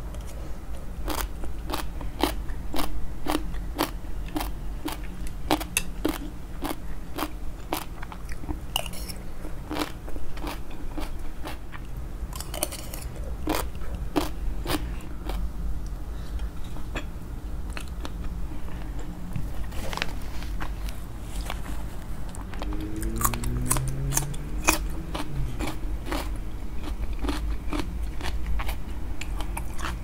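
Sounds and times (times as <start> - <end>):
chewing crunchy salad: 1.0 - 17.1, 17.7 - 30.0.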